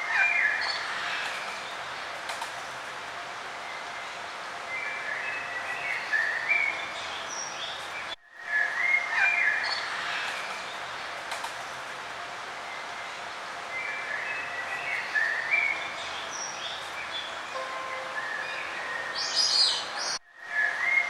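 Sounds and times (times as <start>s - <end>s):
songbirds chirping: 12.4s - 21.0s.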